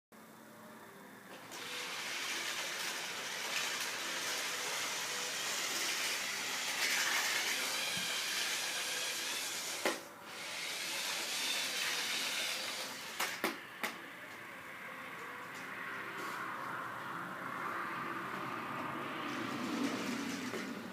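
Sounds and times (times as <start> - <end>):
toy train whirring on track: 1.5 - 13.4, 19.3 - 20.9.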